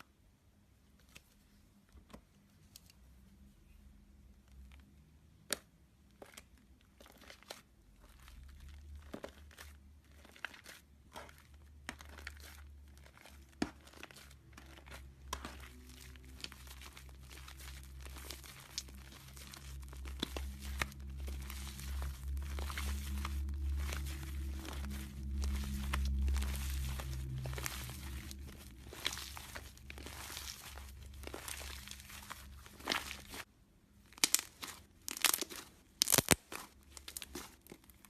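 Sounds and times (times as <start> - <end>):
slime squeezed with sticky crackles: 6.2 - 38.0
low hum: 15.0 - 33.5.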